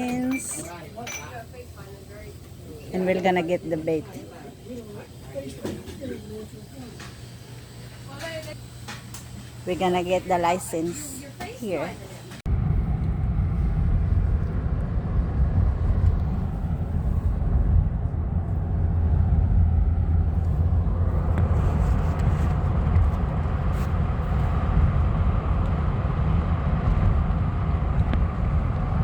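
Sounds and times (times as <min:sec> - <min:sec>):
car cabin driving rumble: 0:12.5 - 0:29.0.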